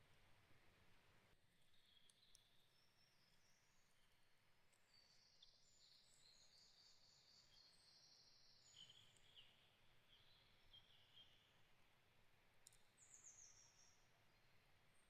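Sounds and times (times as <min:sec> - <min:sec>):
background hiss: 0:00.0 - 0:15.0
distant songbirds: 0:00.2 - 0:15.0.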